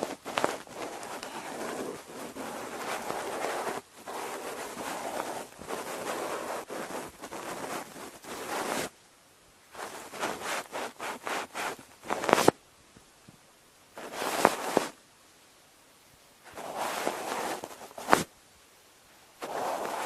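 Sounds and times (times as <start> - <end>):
cotton swab rubbing microphone: 0.0 - 8.9, 9.8 - 12.6, 14.0 - 15.0, 16.5 - 18.3, 19.4 - 20.0.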